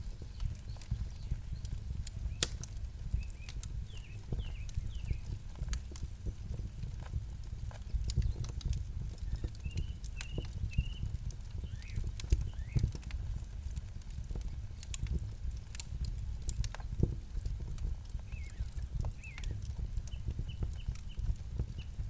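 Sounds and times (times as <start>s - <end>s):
campfire crackling and popping: 0.0s - 22.0s
bird chirping: 3.2s - 5.3s, 9.4s - 12.9s.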